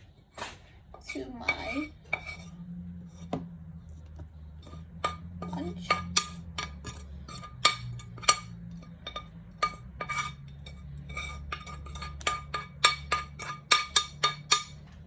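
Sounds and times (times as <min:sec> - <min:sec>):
cutlery clinking on a dish: 0:04.7 - 0:15.0.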